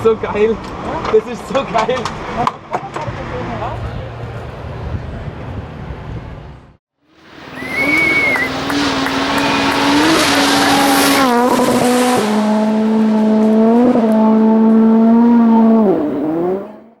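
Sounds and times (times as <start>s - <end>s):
race car engine running hard: 7.3s - 16.8s
brief high squeal: 7.4s - 8.6s.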